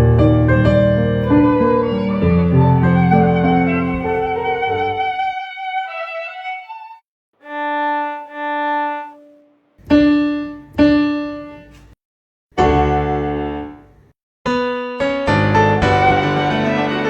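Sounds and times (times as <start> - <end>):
piano notes and chord: 0.0 - 5.0, 12.6 - 13.8, 14.5 - 17.0
violin held notes: 1.2 - 9.7, 15.8 - 17.0.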